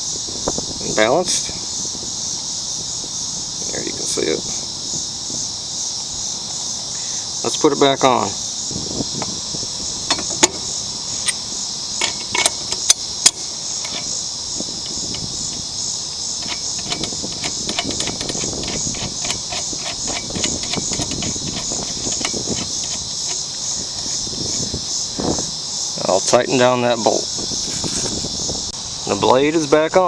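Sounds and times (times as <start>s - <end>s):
crickets chirping: 0.0s - 30.0s
metal clinks and knocks: 9.1s - 25.5s
socket wrench ratchet clicks: 10.0s - 24.8s.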